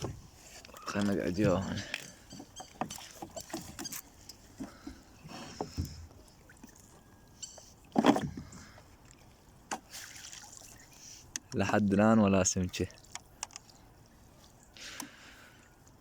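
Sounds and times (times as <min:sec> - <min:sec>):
gear knocking in a boat: 0:00.0 - 0:08.9.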